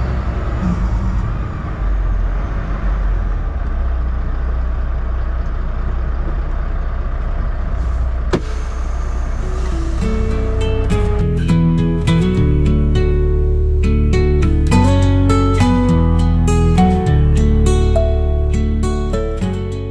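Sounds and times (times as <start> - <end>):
heavy truck rumbling: 0.0 - 19.9.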